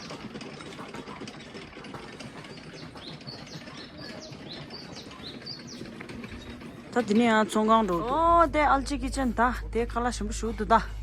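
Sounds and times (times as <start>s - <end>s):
small birds chirping: 0.0s - 8.2s
steady background hum: 0.0s - 11.0s.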